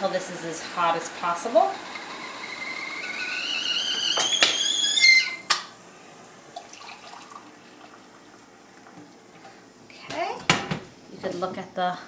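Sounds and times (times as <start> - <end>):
kettle whistling: 0.1 - 5.7.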